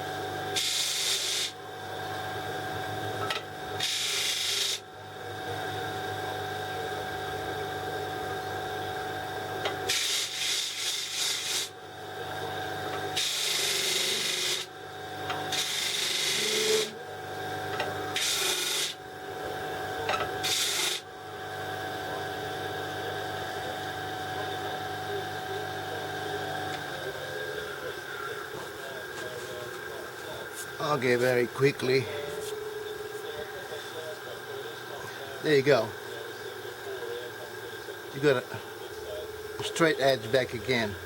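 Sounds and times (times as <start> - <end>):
power tool motor running: 0.0 - 5.8, 6.7 - 28.8.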